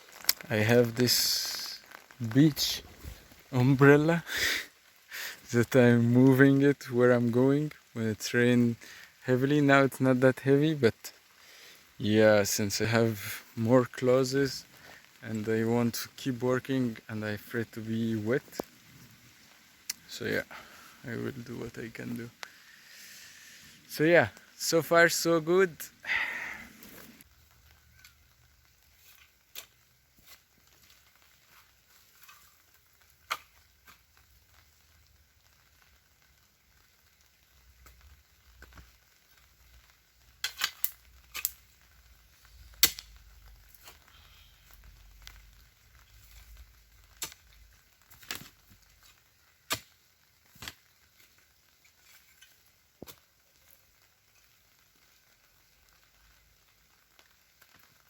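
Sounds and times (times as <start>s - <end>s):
light rain falling: 0.0s - 58.0s.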